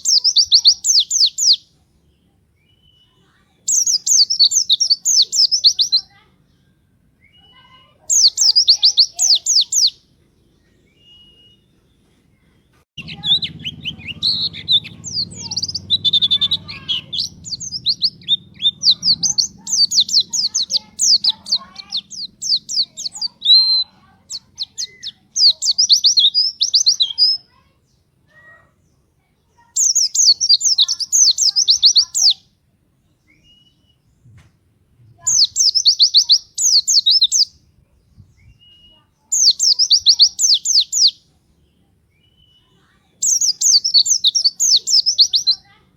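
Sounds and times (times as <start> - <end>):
low hum: 13.0 - 20.8.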